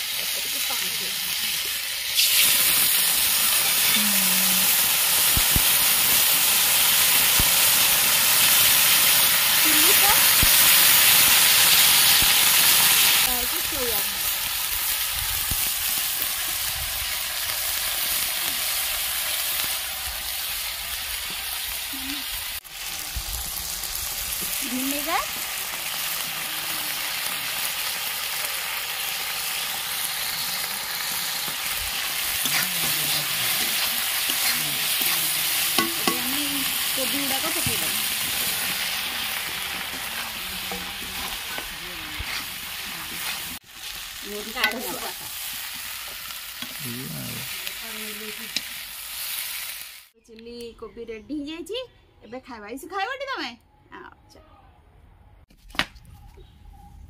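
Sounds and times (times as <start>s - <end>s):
vegetables sizzling in hot oil: 0.0s - 50.2s
metal ladle scraping a pan: 30.2s - 43.6s.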